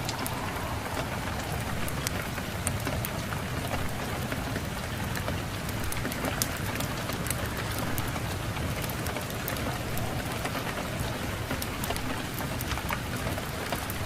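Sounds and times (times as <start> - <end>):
low rumble: 0.0 - 4.0
steady rain falling: 0.0 - 14.0
wood fire crackling: 0.0 - 14.0.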